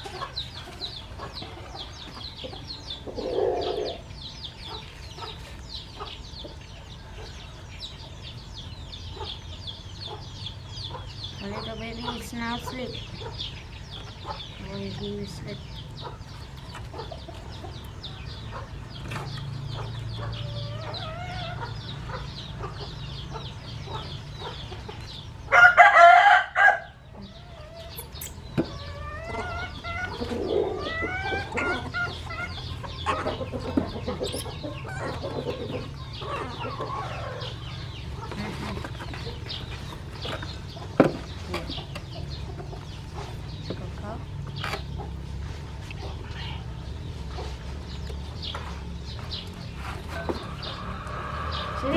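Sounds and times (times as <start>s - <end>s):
chickens clucking and chirping: 0.0s - 51.9s
rooster crowing: 25.5s - 27.0s, 50.2s - 51.9s.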